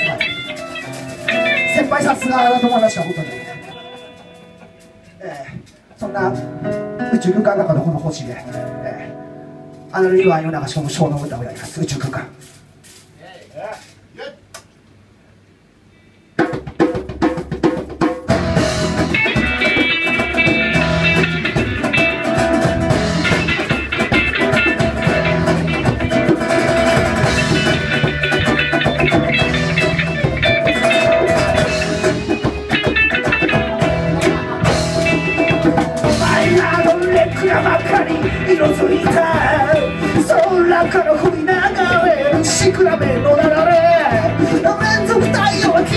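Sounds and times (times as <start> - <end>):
live band playing: 0.0 - 13.1, 16.4 - 45.9
sharp drum hits: 16.4 - 42.7.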